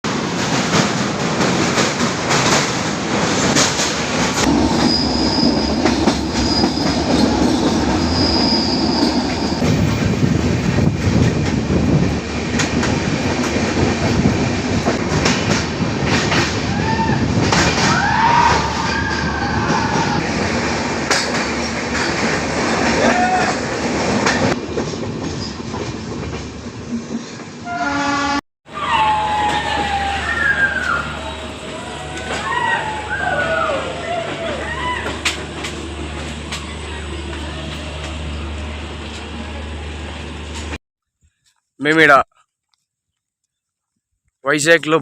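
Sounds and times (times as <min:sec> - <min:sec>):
train rumbling on track: 0:00.0 - 0:40.8
high wheel squeals: 0:04.5 - 0:09.7
wheels clicking over rail joints: 0:29.3 - 0:40.8.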